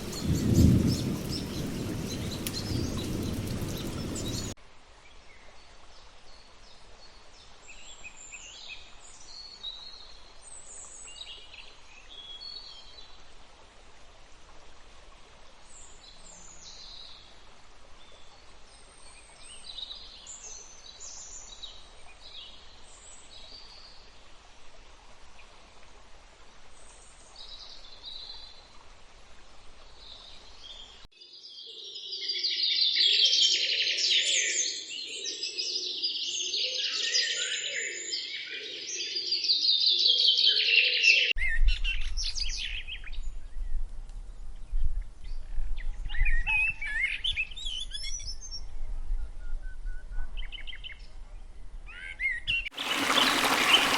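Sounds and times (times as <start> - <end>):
birds chirping and calling: 0.0 - 4.5.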